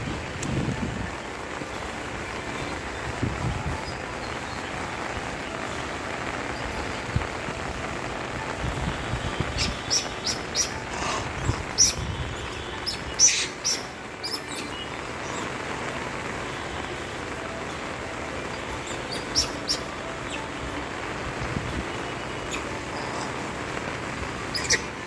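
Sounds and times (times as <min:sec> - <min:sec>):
steady rain falling: 0:00.0 - 0:25.0
high bird chirps: 0:09.4 - 0:15.6, 0:18.5 - 0:20.6, 0:21.7 - 0:23.4, 0:24.4 - 0:25.0.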